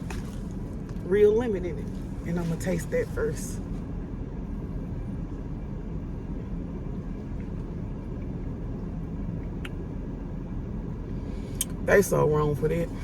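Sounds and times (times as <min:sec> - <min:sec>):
car idling: 0:00.0 - 0:13.0.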